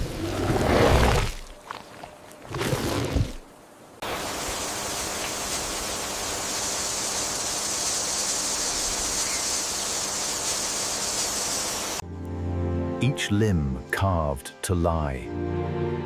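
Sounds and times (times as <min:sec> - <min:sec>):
rainforest ambience hiss: 0:00.0 - 0:12.0.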